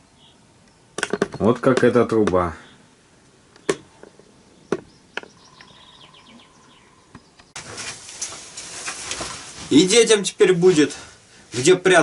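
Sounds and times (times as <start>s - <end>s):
faint chirps: 3.6s - 7.6s.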